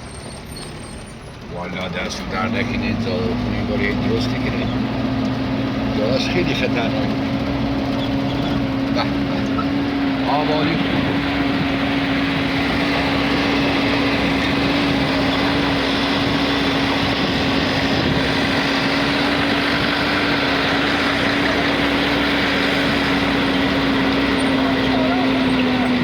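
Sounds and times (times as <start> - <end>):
vehicle engine droning: 0.0 - 26.0.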